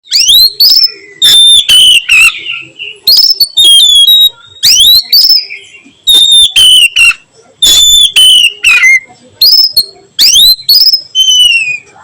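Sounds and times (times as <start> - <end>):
magpie-robin whistled song: 0.0 - 11.9.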